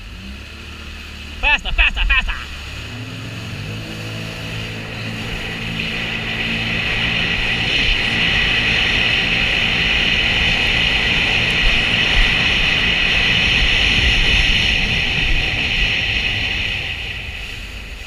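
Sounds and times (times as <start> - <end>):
jet ski engine roaring: 0.0 - 18.0.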